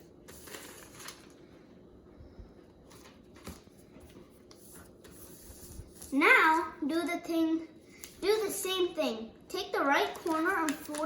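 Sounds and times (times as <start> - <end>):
paper being folded: 0.0 - 1.5, 9.8 - 11.0.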